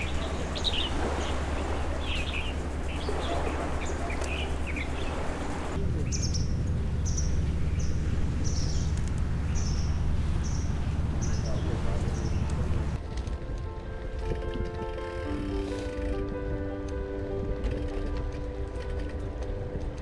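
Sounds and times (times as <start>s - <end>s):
low rumble: 0.0s - 13.0s
wild birds chirping: 0.0s - 13.0s.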